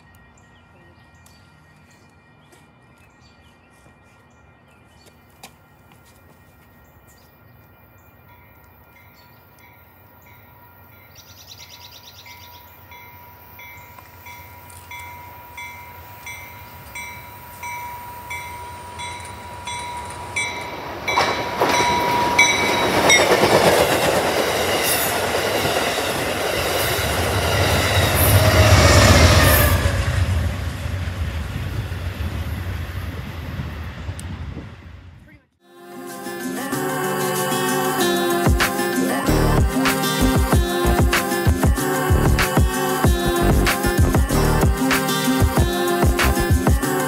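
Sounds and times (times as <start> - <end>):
train rushing past: 9.9 - 35.2, 36.1 - 47.0.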